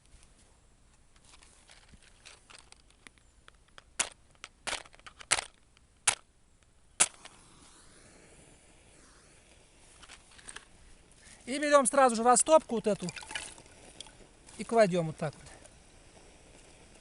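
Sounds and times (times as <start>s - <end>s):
burning match hiss: 6.9s - 17.0s
match scraping on striker: 7.0s - 11.4s.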